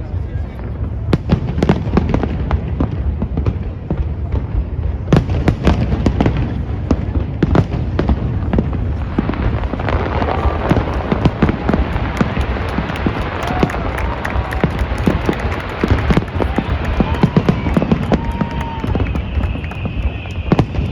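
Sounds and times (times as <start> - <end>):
fireworks bangs and crackles: 0.0 - 20.9
low rumble: 6.5 - 17.3.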